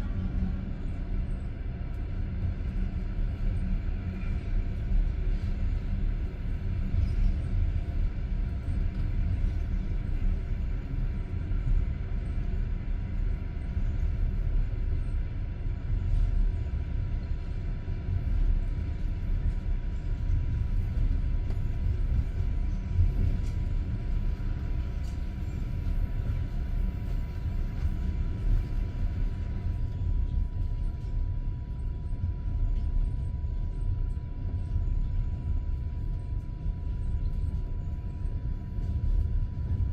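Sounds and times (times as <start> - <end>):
train rumbling inside carriage: 0.0 - 39.9.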